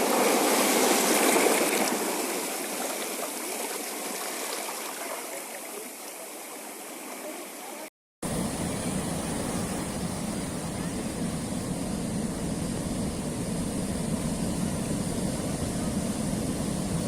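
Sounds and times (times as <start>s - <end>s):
waves washing over rocks: 0.0s - 6.0s.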